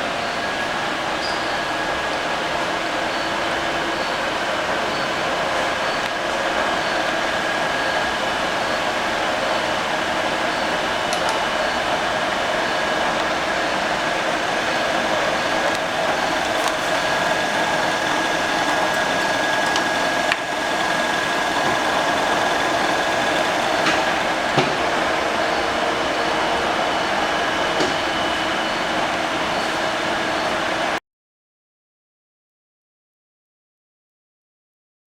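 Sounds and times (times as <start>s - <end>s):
milling machine whirring: 13.5s - 29.1s.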